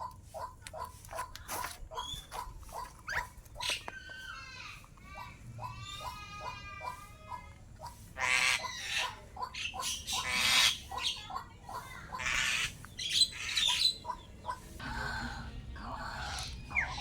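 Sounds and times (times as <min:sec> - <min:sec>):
starling whistling and clicking: 0:00.7 - 0:04.2
bird squawking: 0:07.9 - 0:17.0
bird chattering: 0:08.2 - 0:17.0.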